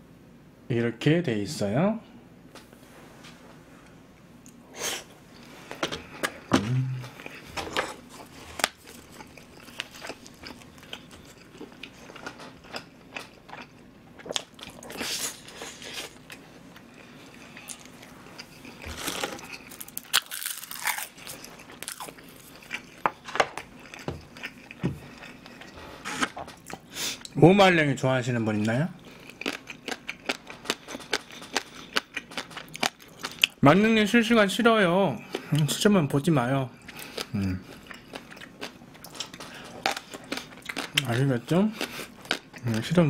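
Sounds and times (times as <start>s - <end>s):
person biting and chewing food: 6.1s - 27.3s, 29.1s - 33.6s, 36.9s - 41.1s.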